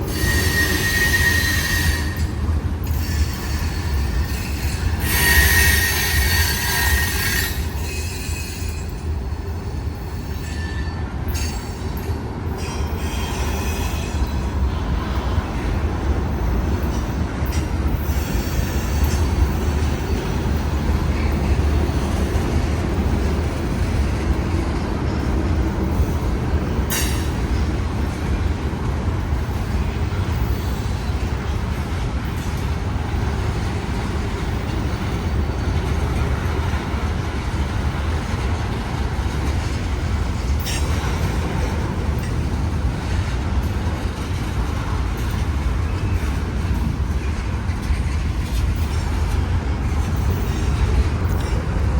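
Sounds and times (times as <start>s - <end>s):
train wheels rumbling on rails: 0.0s - 51.9s.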